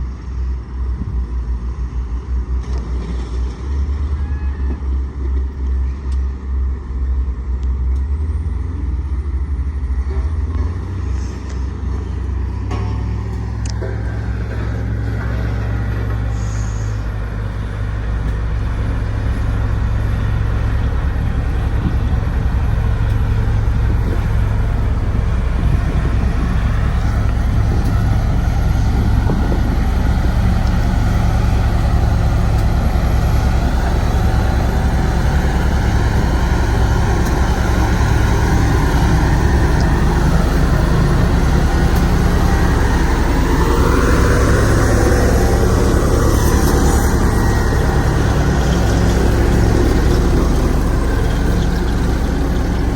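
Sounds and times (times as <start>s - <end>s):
diesel road roller engine droning: 0.0s - 52.9s
whining tone rising: 12.7s - 52.9s.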